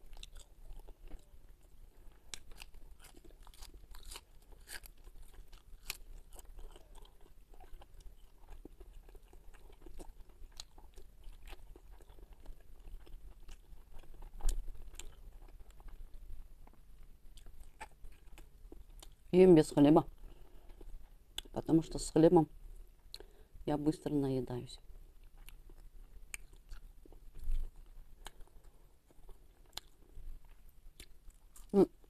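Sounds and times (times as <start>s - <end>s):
chewing and crunching fried fish: 0.0s - 19.3s, 20.2s - 21.6s, 25.2s - 32.0s.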